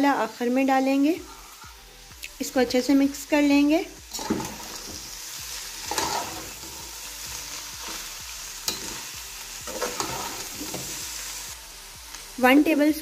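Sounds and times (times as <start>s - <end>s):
filling sizzling in oil: 0.0s - 12.8s
metal spatula scraping pot: 4.1s - 5.1s, 5.8s - 6.8s, 9.7s - 11.0s.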